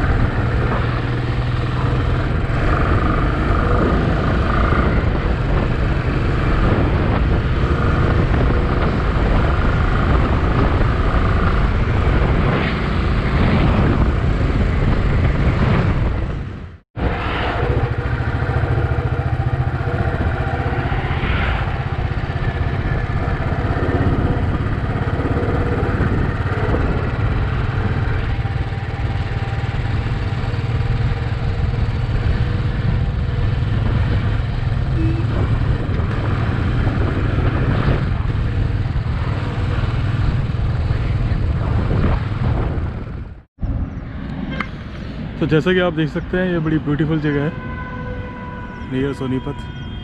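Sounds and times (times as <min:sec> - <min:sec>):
motorcycle engine running: 0:00.0 - 0:16.8, 0:17.5 - 0:43.5.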